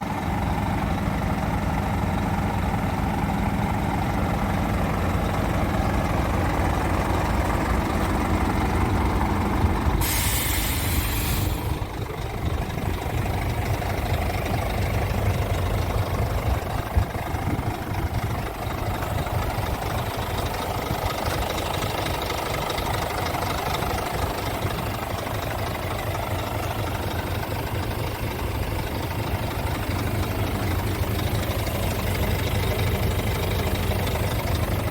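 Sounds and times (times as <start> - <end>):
diesel truck engine idling: 0.0 - 34.9
compressed air hiss: 10.0 - 11.8.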